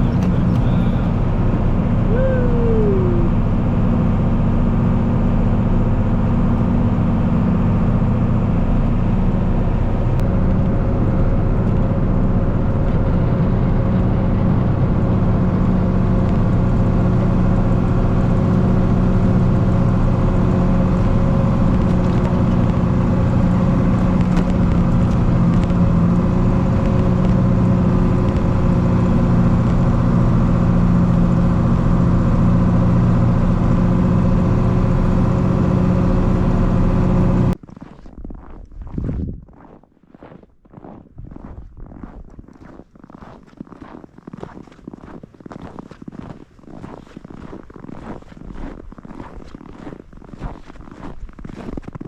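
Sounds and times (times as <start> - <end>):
engine running steadily: 0.0 - 37.6.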